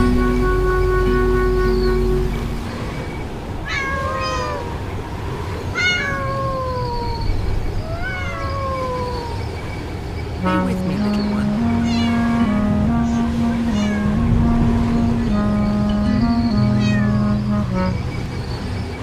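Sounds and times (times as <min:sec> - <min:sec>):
cat meowing: 0:03.6 - 0:04.9, 0:05.7 - 0:09.4, 0:11.8 - 0:12.4, 0:13.7 - 0:14.2, 0:16.8 - 0:17.2.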